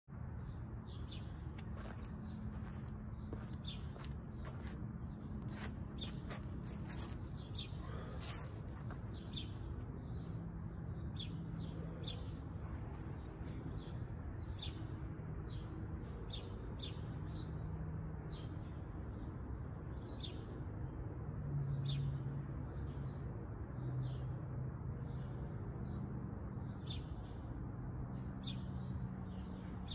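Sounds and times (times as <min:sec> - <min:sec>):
small birds chirping: 0:00.4 - 0:17.6.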